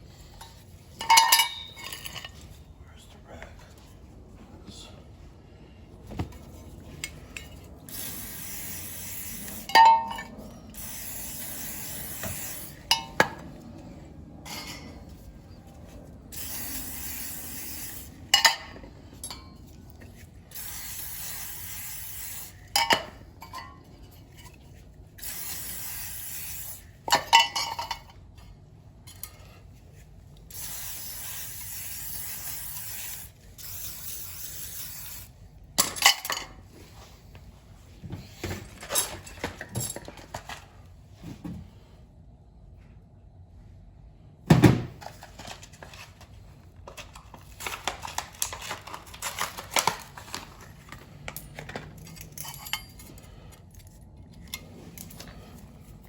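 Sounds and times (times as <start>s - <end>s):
metallic clinks and knocks: 0.4s - 2.5s, 51.3s - 55.3s
hissing spray bursts: 7.9s - 9.7s, 10.8s - 12.8s, 16.4s - 18.2s, 20.5s - 22.6s, 25.2s - 26.8s, 30.5s - 35.3s.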